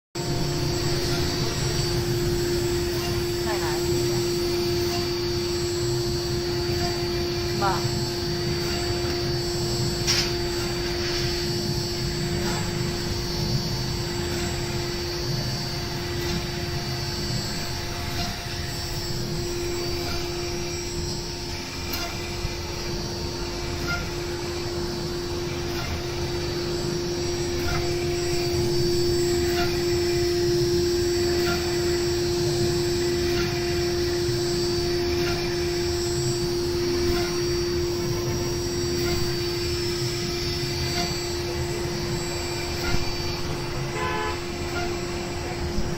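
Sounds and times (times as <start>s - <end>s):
router spindle humming: 0.2s - 45.9s.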